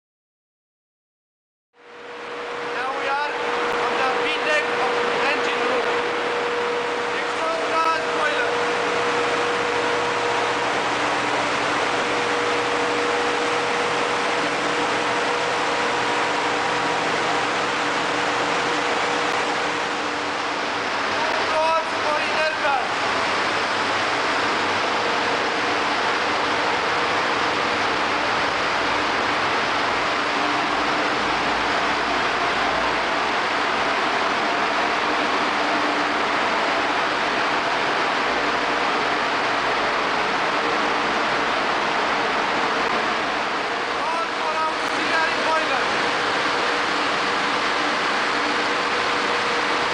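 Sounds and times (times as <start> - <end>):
constant hum: 1.8 - 49.9
engine room machinery roaring: 1.8 - 49.9.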